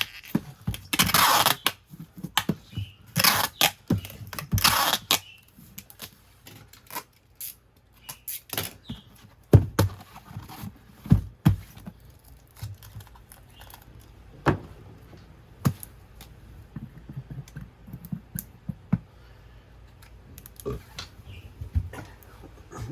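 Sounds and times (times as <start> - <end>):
hands handling sneakers and packaging: 8.0 - 14.7.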